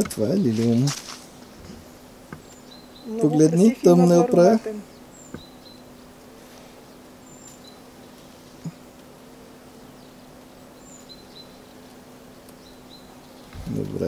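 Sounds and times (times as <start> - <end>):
steady low hum: 0.0 - 14.0
faint bird chirps: 2.4 - 3.8, 4.7 - 9.0, 9.7 - 14.0.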